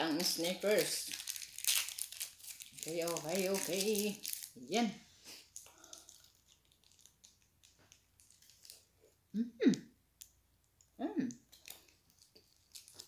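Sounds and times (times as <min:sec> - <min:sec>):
person chewing: 0:05.4 - 0:09.8, 0:11.4 - 0:13.0.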